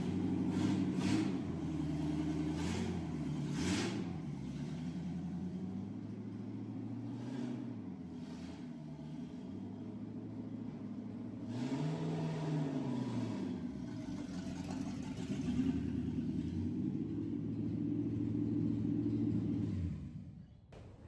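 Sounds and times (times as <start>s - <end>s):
pickup engine revving: 0.0s - 5.3s, 11.3s - 20.3s.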